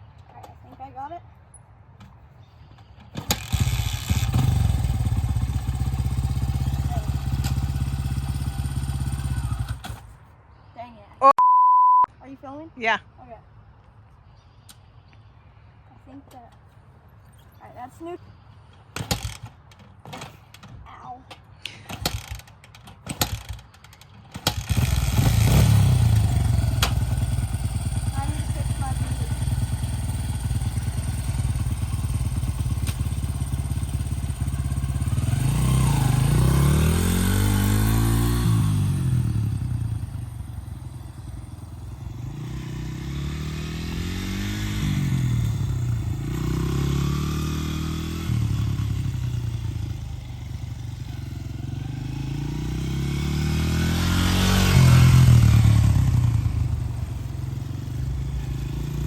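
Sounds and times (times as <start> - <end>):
dirt bike engine revving: 3.2 - 10.0, 23.1 - 59.0.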